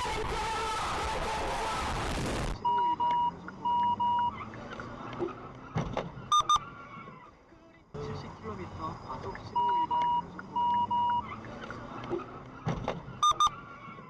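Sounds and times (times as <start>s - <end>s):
electronic beeps: 2.6s - 4.4s, 6.3s - 6.7s, 9.0s - 11.3s, 13.2s - 13.7s.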